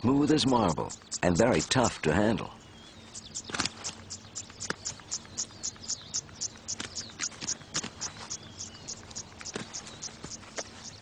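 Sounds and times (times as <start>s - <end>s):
insects chirping: 0.3s - 11.0s
sharp clicks: 3.4s - 10.7s.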